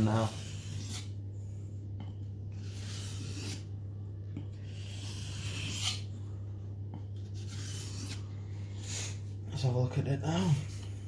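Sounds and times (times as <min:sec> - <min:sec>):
knife scraping on wet whetstone: 0:00.0 - 0:01.1, 0:02.6 - 0:03.7, 0:04.6 - 0:06.1, 0:07.3 - 0:08.2.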